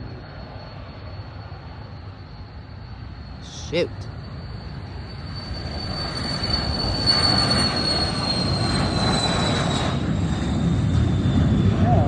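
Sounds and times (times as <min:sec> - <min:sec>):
jet engines whining: 0:00.0 - 0:12.0
rush of engine noise: 0:03.4 - 0:12.0.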